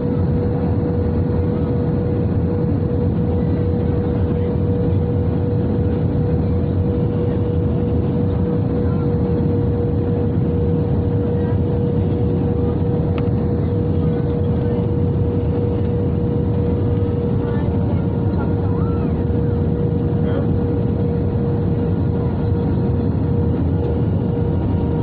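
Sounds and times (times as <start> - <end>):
aircraft engine and airflow rumble: 0.0 - 25.0.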